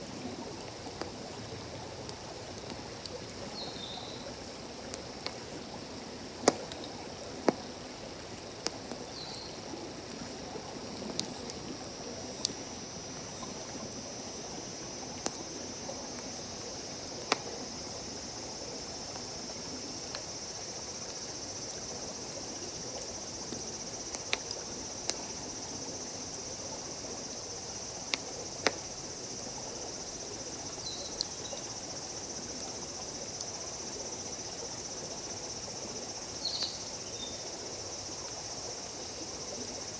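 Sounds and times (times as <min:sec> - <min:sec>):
campfire crackling and popping: 0:00.4 - 0:03.5, 0:04.3 - 0:05.5, 0:06.3 - 0:07.8, 0:08.6 - 0:12.6, 0:15.0 - 0:15.5, 0:17.1 - 0:18.0, 0:22.3 - 0:25.8, 0:26.6 - 0:29.2
high insect trill: 0:12.6 - 0:39.9.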